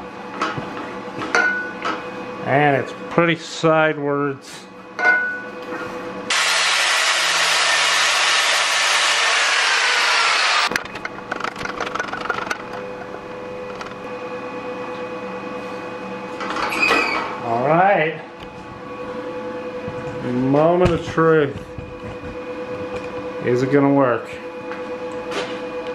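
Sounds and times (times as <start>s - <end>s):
loud even hiss: 6.3s - 10.7s.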